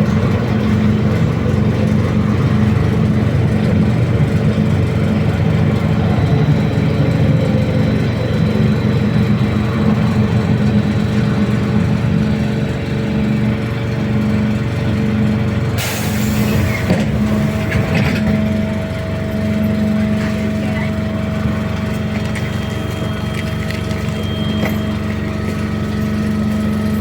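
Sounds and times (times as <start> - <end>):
trolleybus electric drive hum: 0.0 - 27.0
air brake hiss: 15.8 - 17.8.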